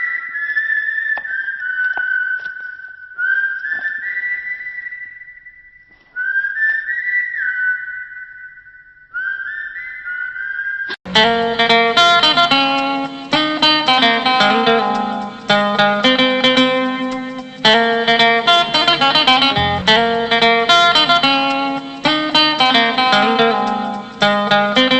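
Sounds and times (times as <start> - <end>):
plucked-string instrumental music: 11.1 - 24.9.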